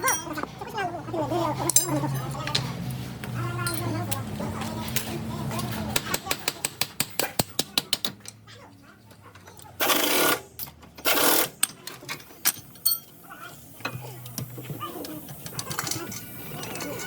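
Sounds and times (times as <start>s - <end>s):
tools clicking on metal: 1.7s - 2.6s, 9.4s - 13.2s
pneumatic impact wrench: 9.8s - 11.6s.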